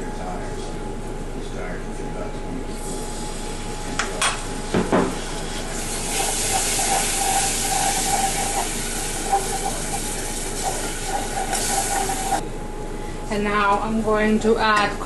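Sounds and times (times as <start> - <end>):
sauce sizzling in pan: 4.6 - 12.4.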